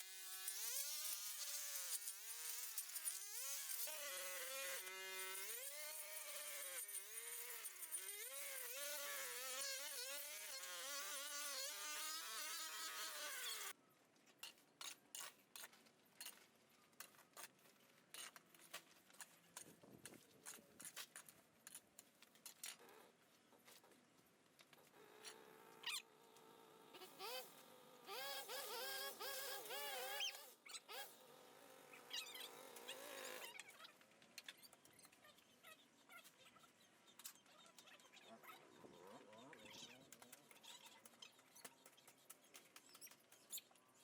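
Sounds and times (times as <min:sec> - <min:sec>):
small two-stroke engine whine: 0:25.2 - 0:33.6.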